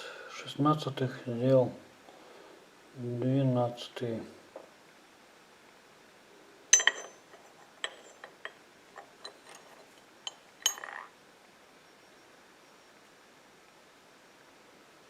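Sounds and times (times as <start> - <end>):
metal tools clinking on hard surface: 6.7 - 11.1.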